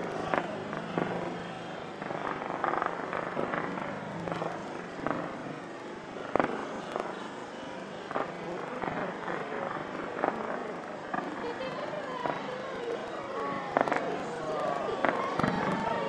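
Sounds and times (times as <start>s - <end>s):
distant fireworks popping and banging: 0.0s - 16.0s
steady background din: 0.0s - 16.0s.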